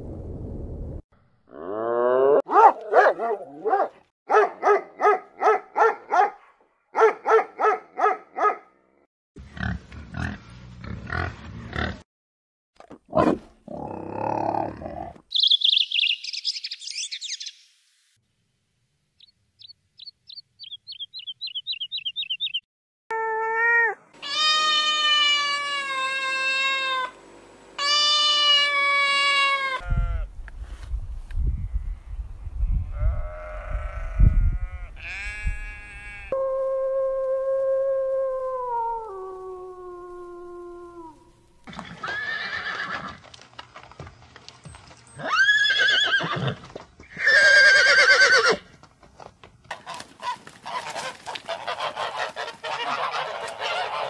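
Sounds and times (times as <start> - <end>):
high chirps: 15.3 - 17.8, 19.2 - 22.6.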